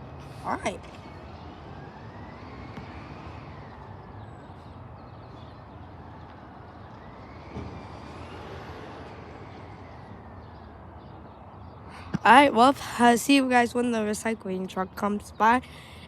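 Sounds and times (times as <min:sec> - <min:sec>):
thump: 0:07.5 - 0:07.8.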